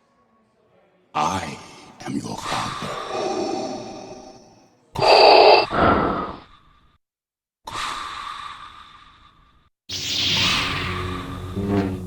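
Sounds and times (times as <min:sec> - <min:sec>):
mechanical respirator breathing: 0:02.6 - 0:06.5.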